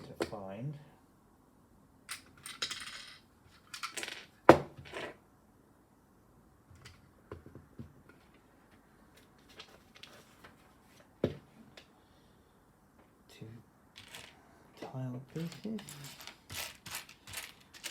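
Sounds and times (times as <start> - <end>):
plastic lego pieces clattering: 14.0 - 14.4, 15.4 - 17.9.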